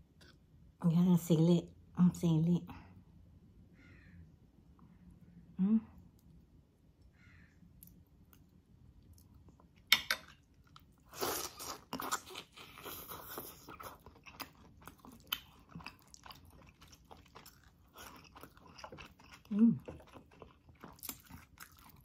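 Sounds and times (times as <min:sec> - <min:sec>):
chewing clicks and smacks: 0:14.0 - 0:22.0.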